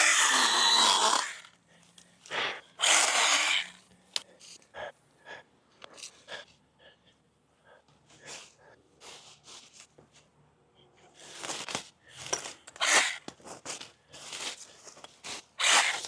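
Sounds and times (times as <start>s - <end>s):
pruning chainsaw running: 2.8s - 3.7s.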